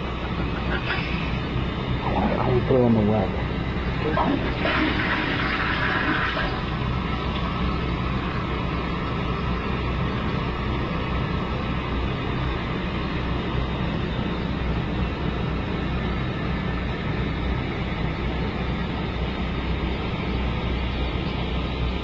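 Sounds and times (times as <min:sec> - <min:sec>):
toilet flushing and refilling: 0:04.1 - 0:06.8.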